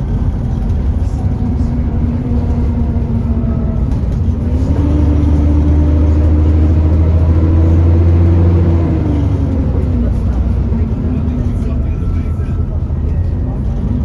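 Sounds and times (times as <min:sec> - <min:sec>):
bus engine running under load: 0:00.0 - 0:14.0.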